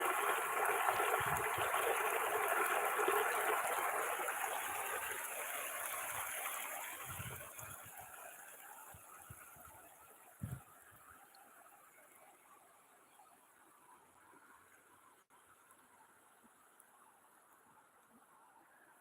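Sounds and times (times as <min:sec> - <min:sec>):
water rushing over a weir: 0:00.0 - 0:11.1.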